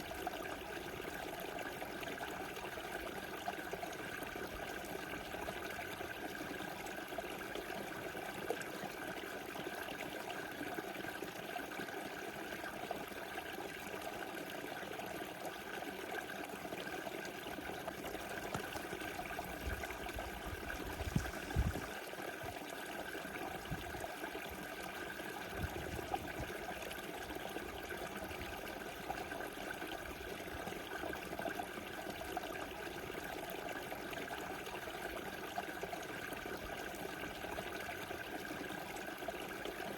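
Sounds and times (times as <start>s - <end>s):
river water rushing and trickling: 16.3s - 39.8s.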